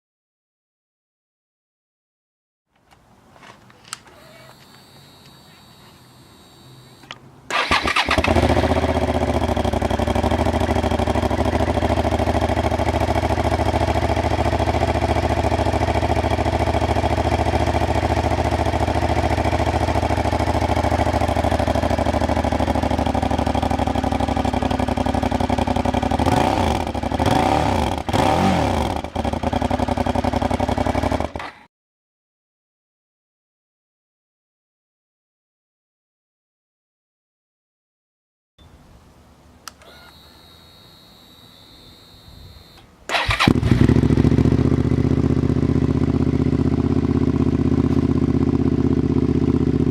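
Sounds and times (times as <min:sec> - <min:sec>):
motorcycle engine revving: 0:04.1 - 0:31.6, 0:39.8 - 0:49.9
motorcycle engine idling: 0:04.2 - 0:31.4, 0:40.2 - 0:49.9.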